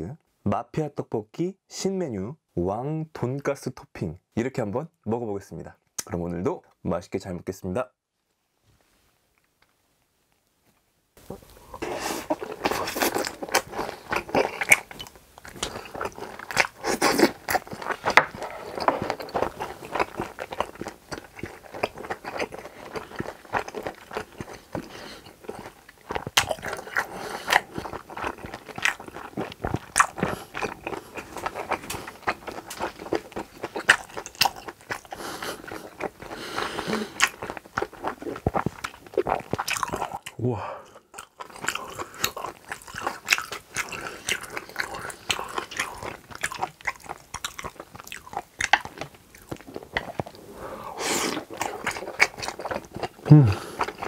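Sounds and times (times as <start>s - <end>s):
person chewing: 11.2s - 54.0s.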